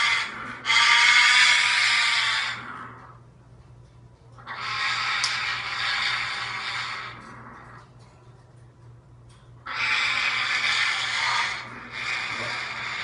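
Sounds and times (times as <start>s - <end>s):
parrot screeching: 0.0s - 3.0s, 4.4s - 7.3s, 9.6s - 13.0s.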